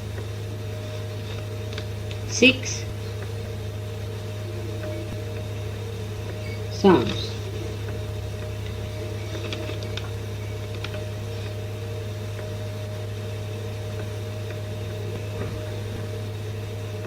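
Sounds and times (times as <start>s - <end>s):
recording hum and hiss: 0.0s - 17.0s
faint clicks: 0.1s - 13.0s.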